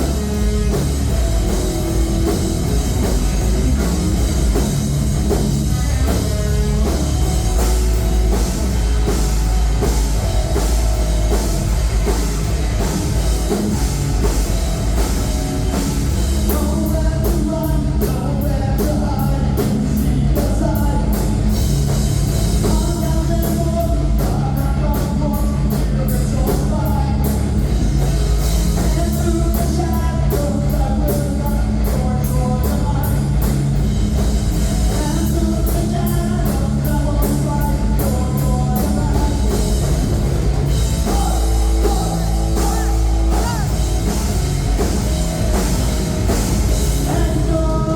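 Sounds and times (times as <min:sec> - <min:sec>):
drum kit beating: 0:00.0 - 0:47.9
live rock band playing: 0:00.0 - 0:47.9
person singing: 0:41.0 - 0:44.4, 0:46.8 - 0:47.9.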